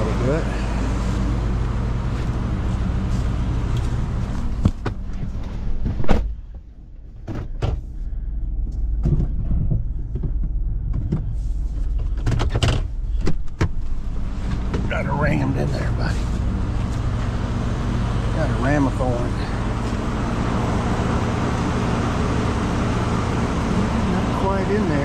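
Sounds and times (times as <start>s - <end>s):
truck engine idling: 0.0s - 25.0s
sharp clunks and knocks: 4.6s - 7.9s, 8.6s - 14.9s.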